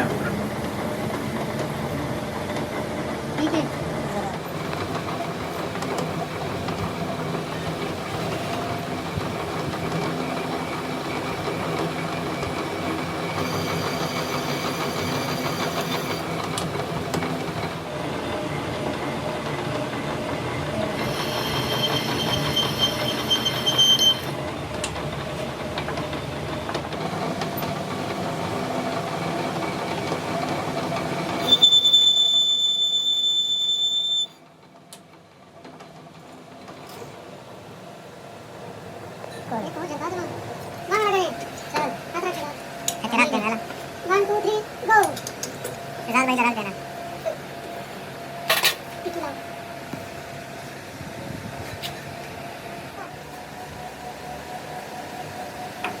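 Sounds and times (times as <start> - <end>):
steady mechanical noise: 0.0 - 56.0
high-pitched metallic squealing: 21.0 - 24.4, 31.4 - 34.4.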